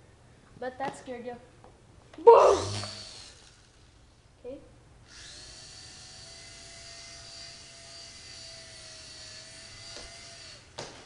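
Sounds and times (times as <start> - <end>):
toy helicopter rotor whine: 2.4 - 4.0, 5.0 - 10.8.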